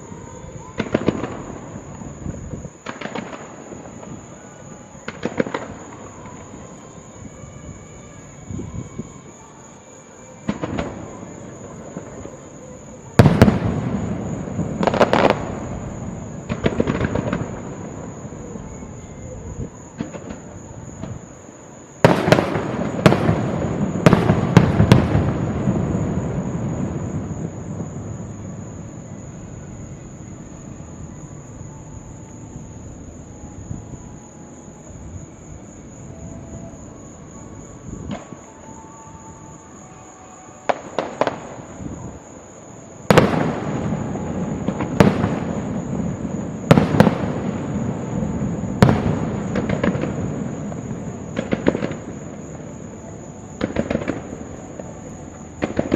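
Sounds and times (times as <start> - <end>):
firework shells booming: 0.8 - 4.2, 5.0 - 6.0, 13.1 - 18.0, 22.0 - 28.7, 43.0 - 52.8, 53.5 - 55.9
faint firework pops: 48.8 - 52.7, 53.6 - 55.0, 55.6 - 55.9.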